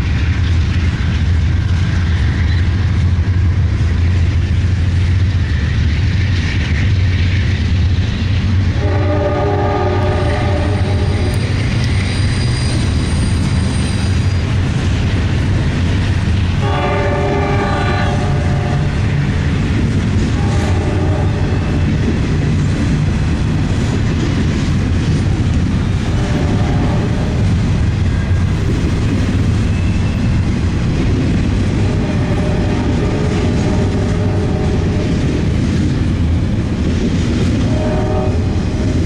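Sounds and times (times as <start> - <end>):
train rumbling past: 0.0 - 39.0.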